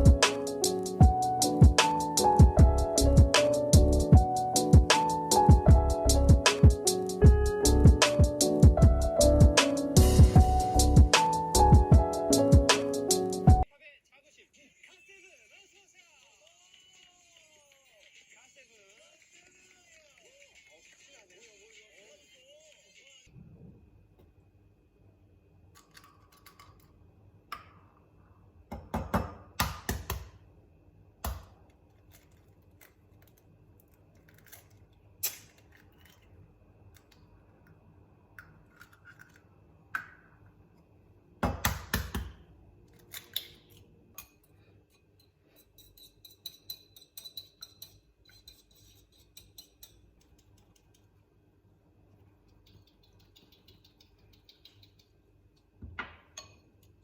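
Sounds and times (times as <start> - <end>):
small objects clicking and tapping: 31.2 - 36.3, 45.8 - 51.2.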